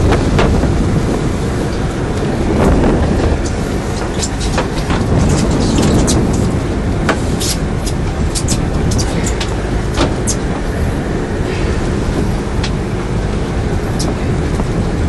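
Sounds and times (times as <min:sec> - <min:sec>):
boat engine running: 0:00.0 - 0:15.0
water noise: 0:00.0 - 0:15.0
wind: 0:00.0 - 0:15.0
sharp clicks and knocks: 0:03.4 - 0:06.5.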